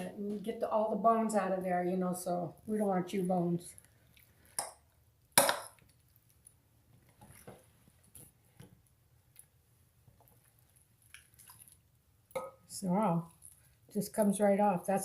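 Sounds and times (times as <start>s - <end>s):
squishy handling of chicken: 9.3s - 12.0s, 13.3s - 14.4s.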